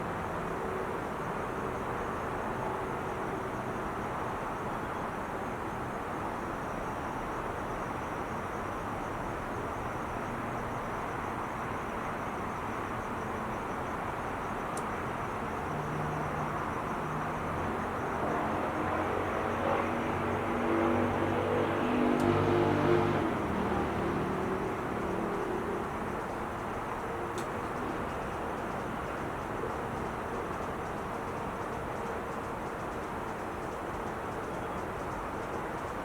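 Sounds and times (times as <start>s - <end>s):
freeway traffic roar: 12.3s - 36.0s
vehicle engine hum: 18.5s - 30.9s.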